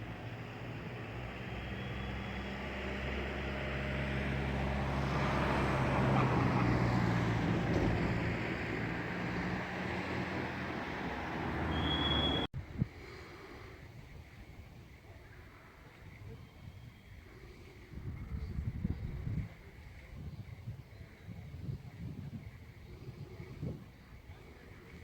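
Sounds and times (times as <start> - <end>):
vehicle engine humming: 0.0 - 12.5.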